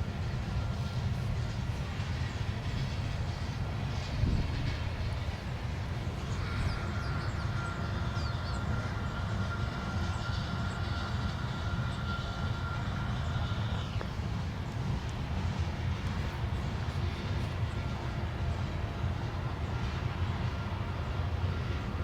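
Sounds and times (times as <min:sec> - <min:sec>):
freight train rumbling on rails: 0:00.0 - 0:22.0.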